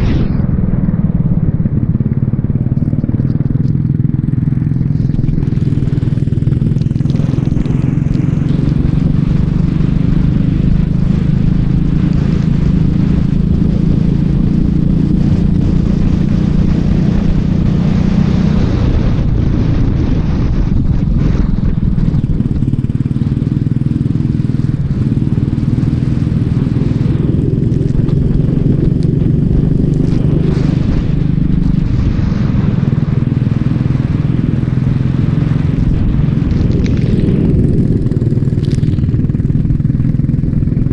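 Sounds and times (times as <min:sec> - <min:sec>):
rushing noise: 0:00.0 - 0:03.2, 0:24.5 - 0:40.9
racing kart engine: 0:00.9 - 0:40.9.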